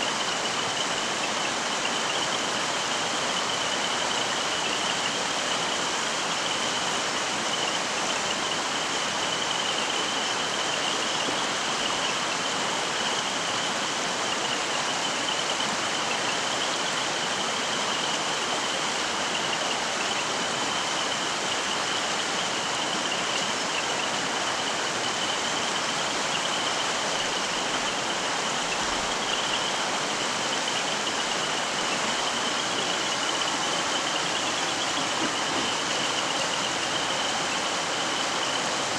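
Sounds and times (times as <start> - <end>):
stream flowing over rocks: 0.0 - 38.9
thin high steady tone: 22.4 - 38.9.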